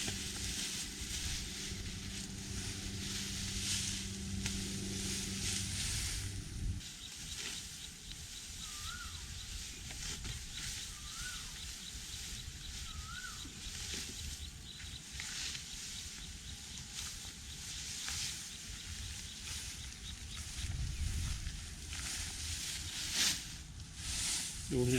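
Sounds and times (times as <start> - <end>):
wind rumbling on microphone: 0.0 - 6.9, 8.0 - 14.9, 18.7 - 23.0
dry rustling: 0.0 - 24.9
bird whistled call: 8.6 - 9.6, 10.5 - 11.7, 12.6 - 13.6.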